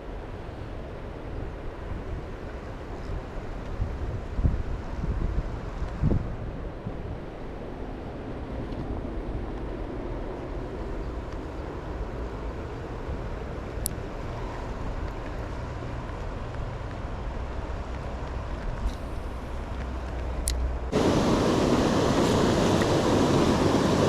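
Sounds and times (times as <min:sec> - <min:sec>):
distant road traffic rumble: 0:00.0 - 0:24.0
wind on microphone: 0:01.4 - 0:12.2
rushing noise: 0:16.5 - 0:24.0.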